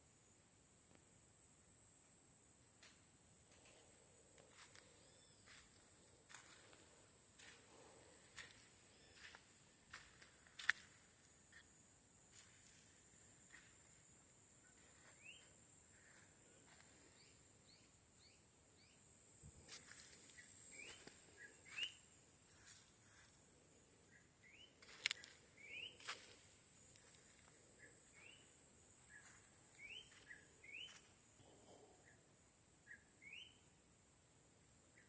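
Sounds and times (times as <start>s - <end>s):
small bird chirping: 15.0s - 16.1s, 17.1s - 19.0s, 19.8s - 23.3s, 24.1s - 26.3s, 27.8s - 31.1s, 32.8s - 33.7s.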